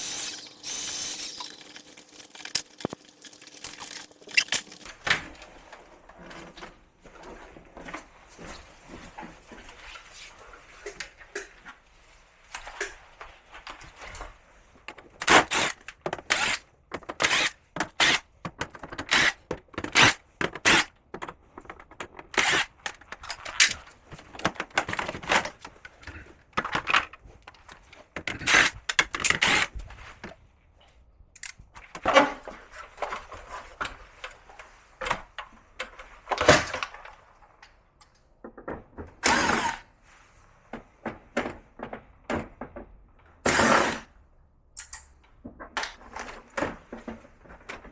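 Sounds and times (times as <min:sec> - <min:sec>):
plastic panels and tools clattering: 0:00.0 - 0:04.9.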